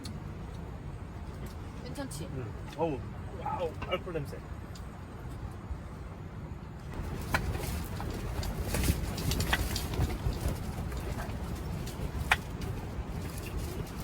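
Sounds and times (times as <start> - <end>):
wind buffeting microphone: 6.9 - 14.0.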